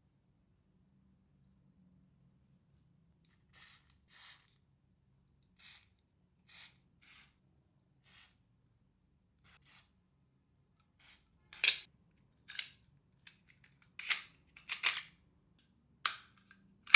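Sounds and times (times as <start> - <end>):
pistol mechanical clicks and snaps: 12.5 - 15.1, 16.1 - 16.9.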